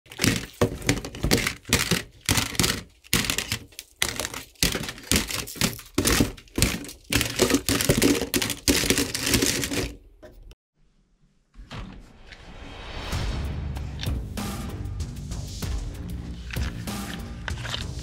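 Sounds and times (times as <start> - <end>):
plastic toy guns clattering: 0.1 - 10.0, 16.6 - 18.0.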